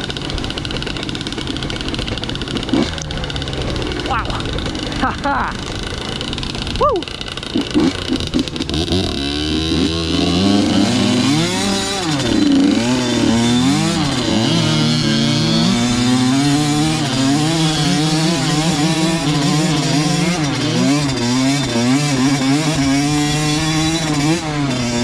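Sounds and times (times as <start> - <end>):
dirt bike engine revving: 0.0 - 25.0.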